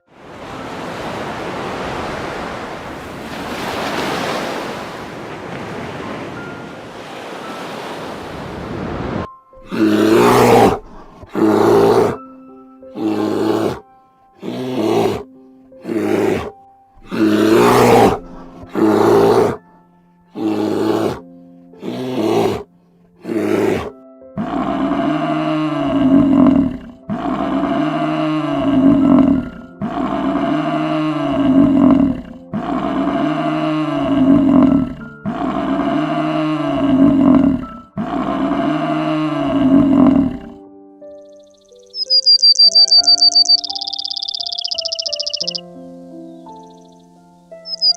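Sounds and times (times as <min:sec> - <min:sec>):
background music: 0:08.3 - 0:47.9
animal roaring calls: 0:09.6 - 0:12.2, 0:13.0 - 0:13.8, 0:14.4 - 0:19.6, 0:20.4 - 0:40.6, 0:42.0 - 0:45.6.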